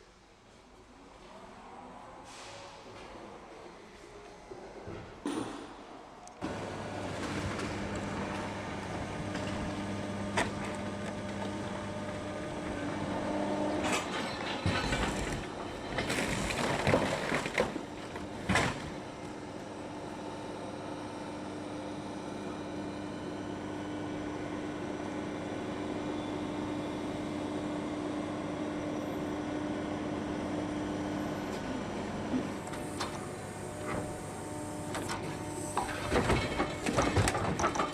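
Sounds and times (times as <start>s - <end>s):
crushing machinery humming: 6.4s - 20.6s, 29.3s - 37.9s
metal clattering and crunching: 13.9s - 18.8s.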